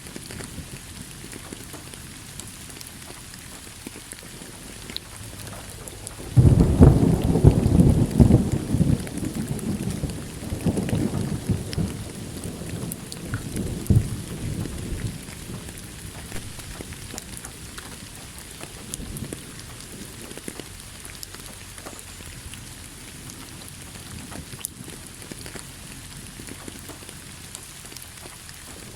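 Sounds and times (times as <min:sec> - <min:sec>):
steady rain: 0:00.0 - 0:28.9
thunder rumbling: 0:04.2 - 0:26.6
thunder crack: 0:05.1 - 0:20.3.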